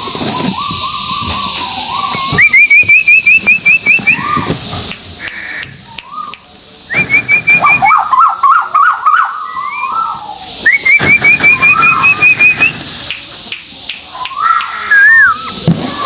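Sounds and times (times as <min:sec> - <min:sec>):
bird whistling and warbling: 0:00.1 - 0:04.5, 0:09.0 - 0:12.8, 0:14.2 - 0:15.6.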